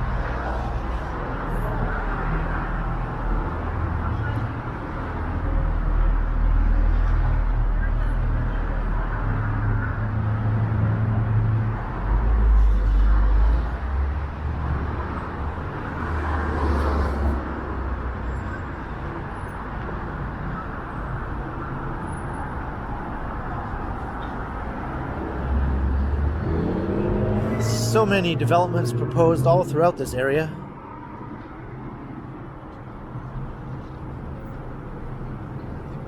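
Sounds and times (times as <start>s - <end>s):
street traffic rumble: 0.0s - 36.0s
loud vehicle passing: 10.1s - 18.0s, 23.0s - 31.4s.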